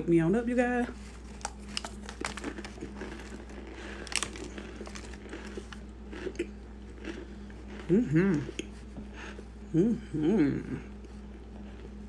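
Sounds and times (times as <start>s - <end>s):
mouth crunching hard food: 1.0s - 9.4s.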